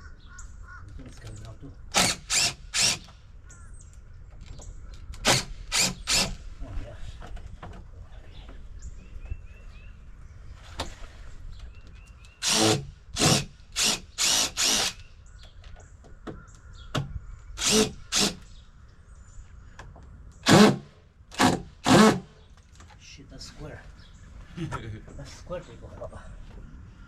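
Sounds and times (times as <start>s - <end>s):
cordless drill running: 2.0s - 3.1s, 5.2s - 6.4s, 12.4s - 15.0s, 17.6s - 18.4s, 20.4s - 22.3s.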